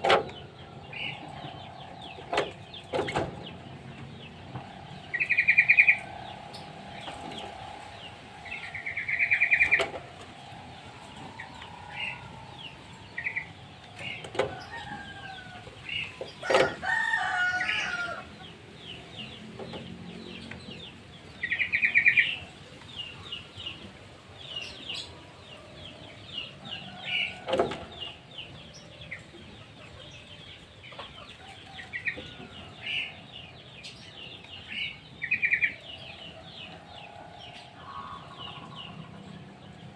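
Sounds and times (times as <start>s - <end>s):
birds chirping: 0.0s - 39.9s
bird trills: 0.3s - 18.3s.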